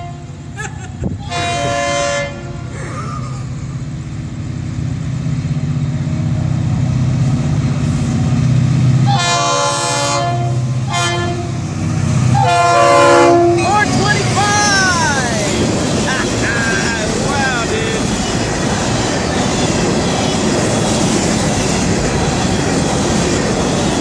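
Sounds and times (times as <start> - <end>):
locomotive air horn: 0.0 - 0.3, 1.2 - 2.7, 9.1 - 11.6, 12.4 - 14.7
freight train rumbling: 0.0 - 24.0.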